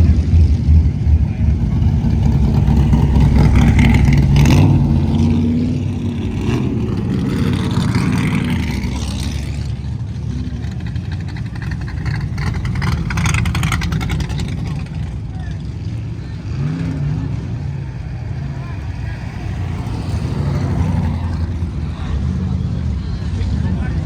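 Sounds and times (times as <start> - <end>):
car engine with deep exhaust: 0.0 - 24.0.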